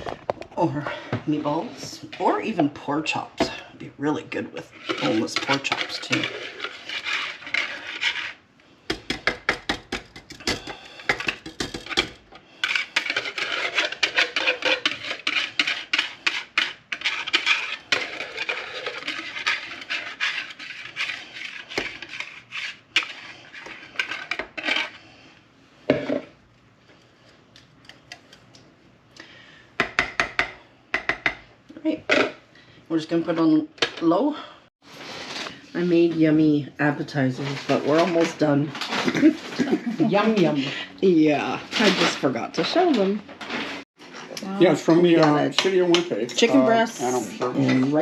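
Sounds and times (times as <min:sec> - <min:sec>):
utensil scraping a dish: 0:00.9 - 0:26.3, 0:37.4 - 0:48.0.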